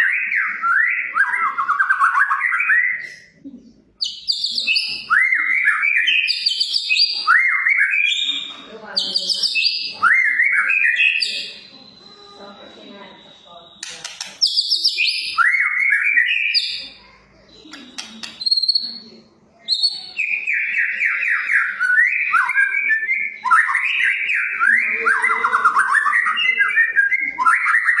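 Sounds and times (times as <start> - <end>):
bird singing rapid whistled notes: 4.0 - 12.1, 13.8 - 16.9, 17.6 - 28.0.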